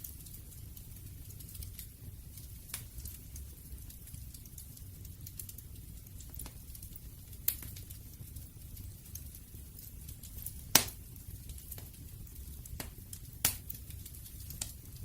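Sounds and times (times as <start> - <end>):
fire rumbling and crackling: 0.0 - 15.0
loud sharp fire pops: 10.7 - 12.0, 12.7 - 15.0.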